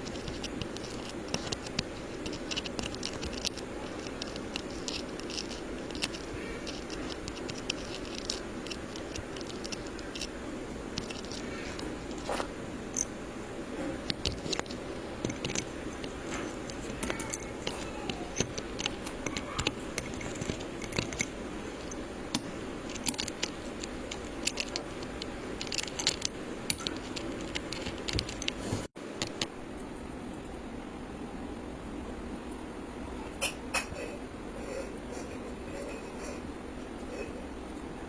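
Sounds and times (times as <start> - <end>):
electrical wires being handled: 0.0 - 30.1
steady background hiss: 0.0 - 38.0.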